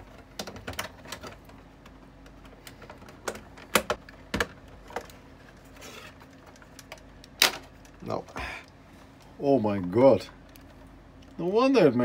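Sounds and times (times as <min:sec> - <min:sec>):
plastic parts clicking and tapping: 0:00.0 - 0:05.2.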